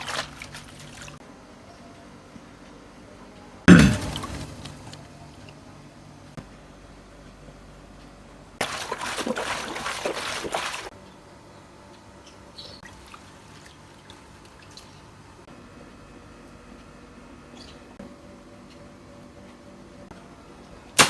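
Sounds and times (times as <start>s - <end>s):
faint water drips: 0.0s - 1.2s, 3.7s - 5.7s, 8.6s - 10.9s, 12.8s - 15.4s
water splashing and pouring: 0.0s - 1.2s, 3.7s - 5.2s, 8.6s - 10.9s.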